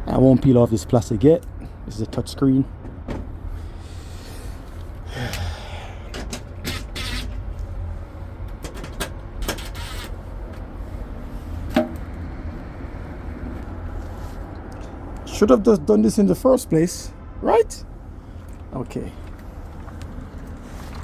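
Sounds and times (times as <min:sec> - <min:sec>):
steady low rumble: 0:07.3 - 0:09.4, 0:10.1 - 0:21.0.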